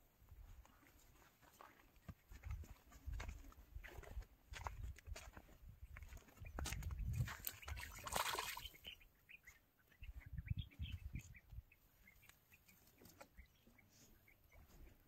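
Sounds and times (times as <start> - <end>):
small birds chirping: 4.6 - 15.0.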